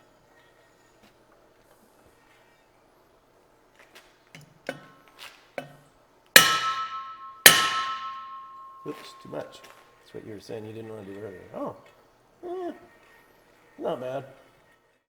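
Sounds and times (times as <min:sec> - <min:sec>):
hammer striking ringing steel tube: 0:06.4 - 0:09.7.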